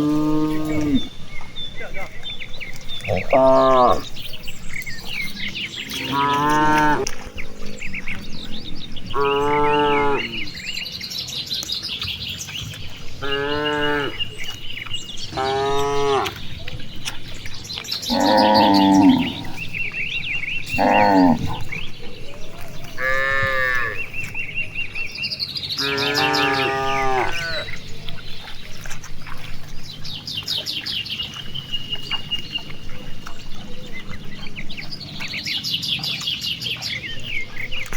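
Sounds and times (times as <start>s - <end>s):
cows mooing: 0.0s - 7.2s, 9.1s - 10.7s, 13.0s - 17.4s, 18.0s - 25.0s, 25.8s - 28.6s
small birds chirping: 0.0s - 37.9s.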